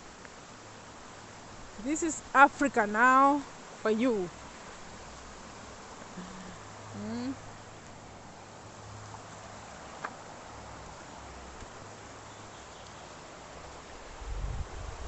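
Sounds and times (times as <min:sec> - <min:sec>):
outdoor background hiss: 0:00.0 - 0:15.0
low rumble buffeting microphone: 0:13.9 - 0:15.0.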